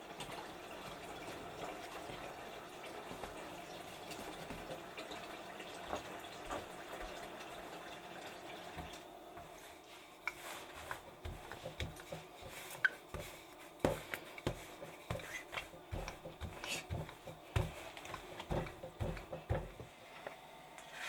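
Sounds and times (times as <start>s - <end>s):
water running from a tap: 0.0s - 9.3s.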